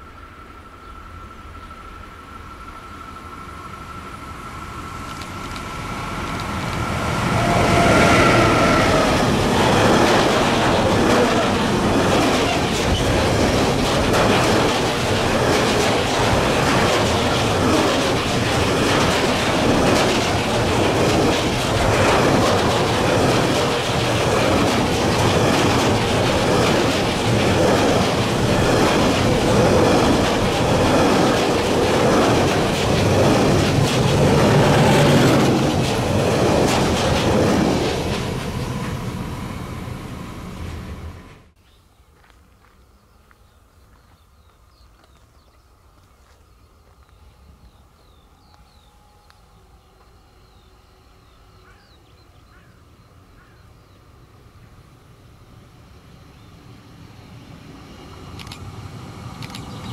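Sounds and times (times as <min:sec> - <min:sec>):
train whine: 0:00.0 - 0:41.6, 0:42.2 - 0:59.9
wagons clattering over rail joints: 0:05.1 - 0:39.2.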